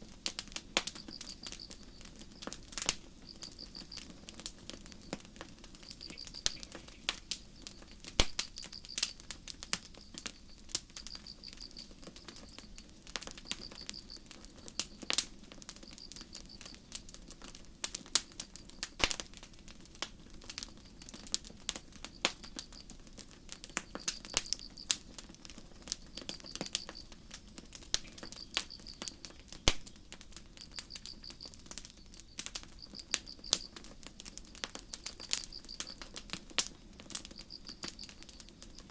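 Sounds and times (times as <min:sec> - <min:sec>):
campfire crackling: 0:00.0 - 0:38.9
crickets chirping: 0:00.8 - 0:16.9, 0:20.7 - 0:38.9
sharp pops: 0:08.2 - 0:10.3.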